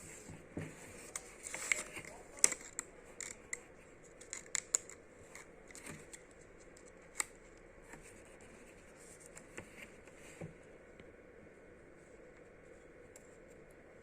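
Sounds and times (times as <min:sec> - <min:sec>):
paper and plastic rustling: 0:00.0 - 0:03.3.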